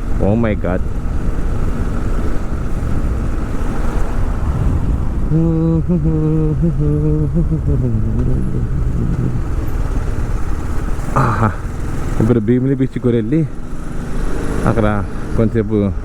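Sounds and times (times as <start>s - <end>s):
wind noise: 0.0s - 12.3s
motorcycle engine: 0.0s - 16.0s.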